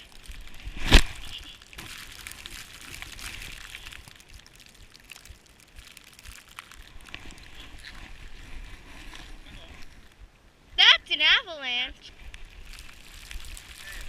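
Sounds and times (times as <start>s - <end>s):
snow crunching and sliding: 0.0s - 11.3s, 12.0s - 14.0s
wind rumble on microphone: 2.8s - 11.0s.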